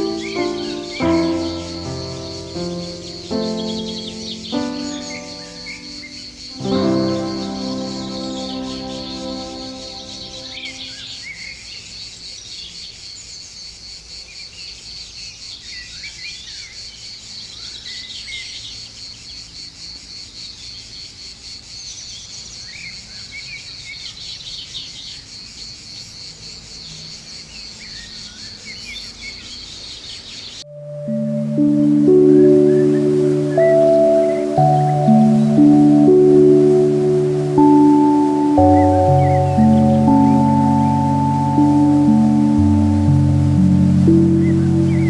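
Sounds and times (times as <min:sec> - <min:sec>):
high-pitched insect chorus: 0:00.0 - 0:11.3, 0:30.7 - 0:45.0
songbirds chirping: 0:00.0 - 0:11.4, 0:27.6 - 0:45.0.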